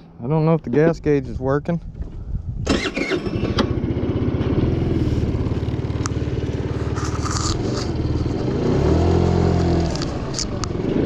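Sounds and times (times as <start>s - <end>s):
scooter engine puttering: 2.7s - 11.0s.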